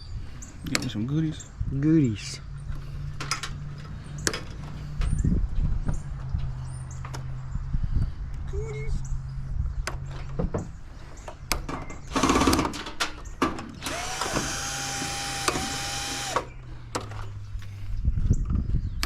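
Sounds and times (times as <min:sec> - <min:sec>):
power drill running: 0:13.7 - 0:16.6.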